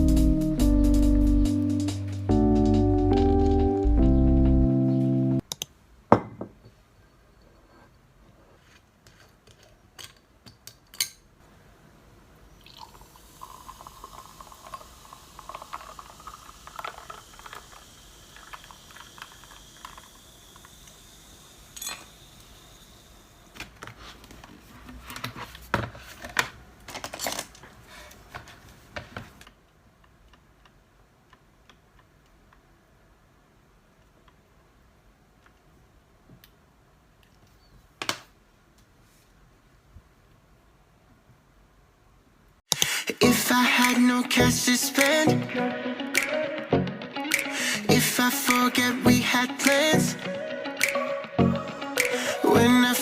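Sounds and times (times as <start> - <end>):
liquid poured into a glass: 12.6 - 20.8.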